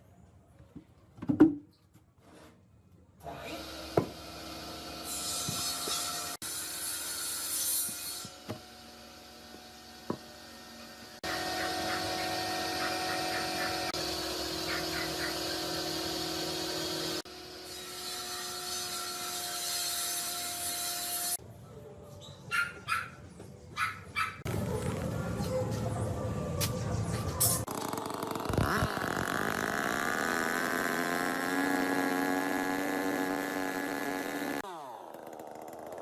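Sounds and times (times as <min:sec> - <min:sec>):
power tool sawing or sanding: 0:03.3 - 0:21.4, 0:27.6 - 0:36.0.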